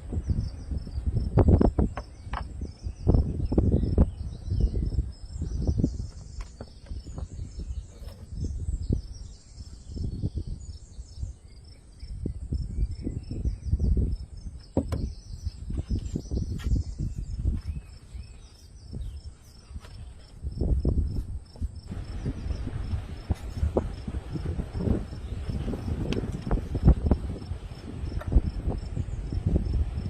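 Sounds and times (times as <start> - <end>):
crickets and insects chirping: 0.0 - 30.0
low rumbling: 21.8 - 30.0.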